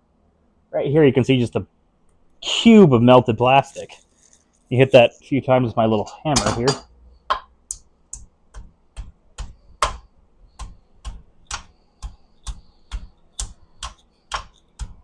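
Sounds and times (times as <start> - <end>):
small hammer tapping: 6.4 - 15.0.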